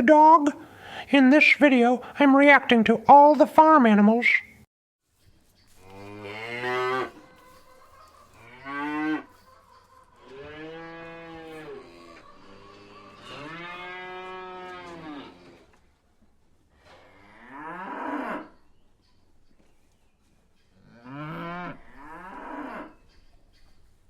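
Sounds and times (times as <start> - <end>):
cows mooing: 5.8 - 7.4, 8.3 - 9.4, 10.2 - 15.8, 16.9 - 18.6, 20.8 - 23.0.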